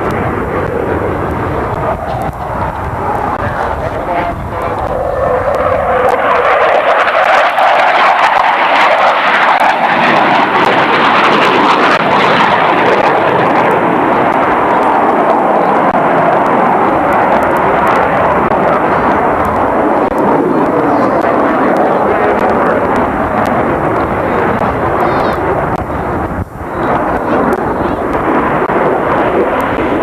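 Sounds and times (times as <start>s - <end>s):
aircraft engine roar: 0.0s - 30.0s.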